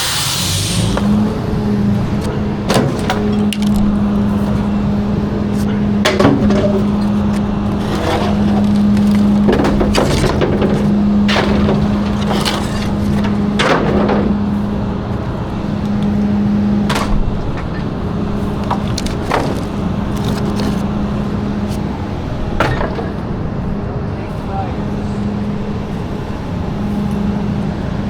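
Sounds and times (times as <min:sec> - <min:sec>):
garbage truck droning: 0:00.0 - 0:28.0
wood and trash breaking: 0:02.6 - 0:04.2, 0:06.0 - 0:14.7, 0:16.9 - 0:21.0, 0:22.5 - 0:23.4.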